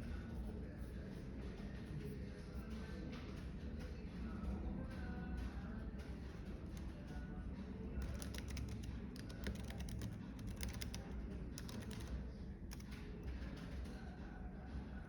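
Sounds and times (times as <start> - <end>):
low cafe rumble: 0.0 - 15.0
keyboard typing: 6.0 - 14.0.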